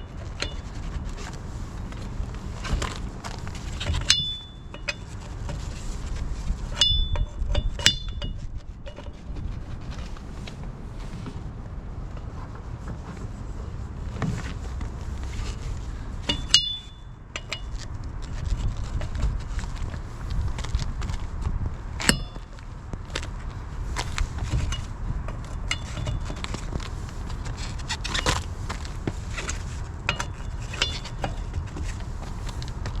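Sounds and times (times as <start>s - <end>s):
low steady rumble: 0.0s - 33.0s
metal tools clinking on wheel parts: 3.6s - 5.3s, 6.7s - 9.2s, 15.2s - 19.2s, 22.0s - 22.6s, 24.0s - 26.8s, 27.5s - 32.0s
ringing metal strikes: 4.0s - 5.0s, 6.8s - 8.4s, 16.2s - 17.7s, 22.1s - 22.5s.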